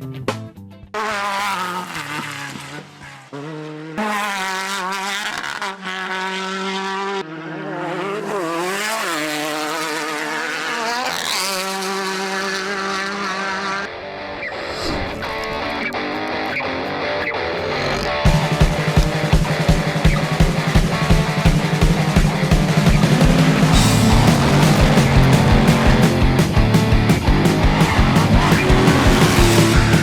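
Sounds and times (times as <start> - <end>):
race vehicle engines revving: 0.9 - 30.0.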